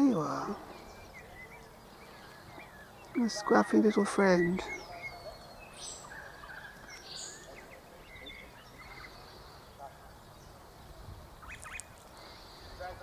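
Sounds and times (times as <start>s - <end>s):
distant bird chirps: 0.0s - 13.0s.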